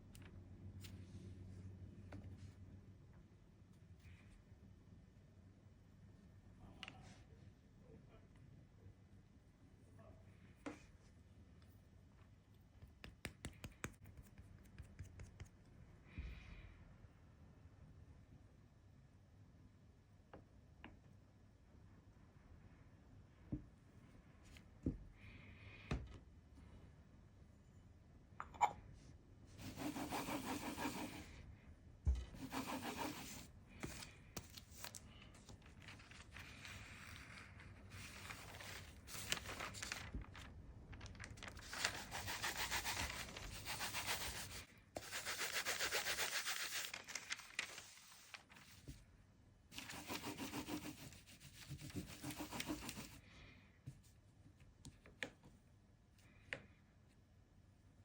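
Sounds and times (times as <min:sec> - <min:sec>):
hand rubbing on hard surface: 0:29.6 - 0:31.3, 0:32.4 - 0:33.5.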